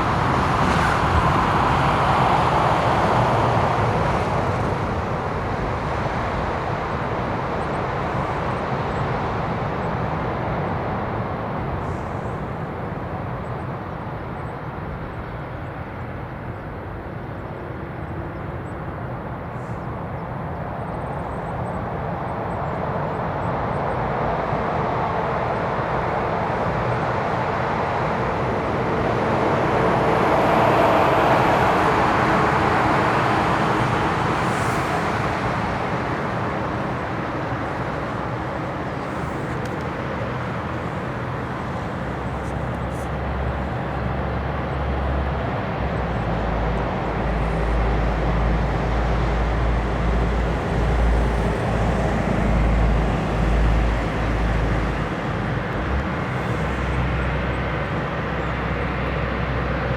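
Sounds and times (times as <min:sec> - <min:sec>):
jet airliner taking off: 0:00.0 - 0:09.2, 0:21.8 - 0:59.9
faint rising engine whine: 0:00.0 - 0:09.3, 0:20.7 - 0:59.9.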